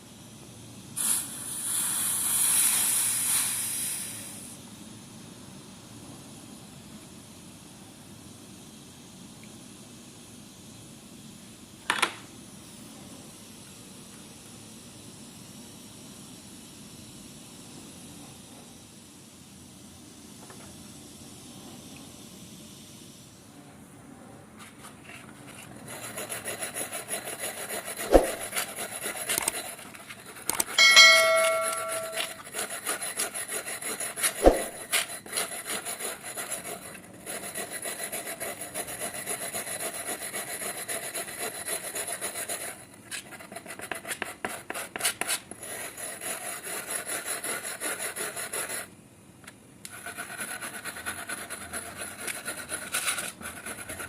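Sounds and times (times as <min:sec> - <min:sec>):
metallic ring: 0:30.8 - 0:32.4
sharp knock: 0:30.8 - 0:32.4.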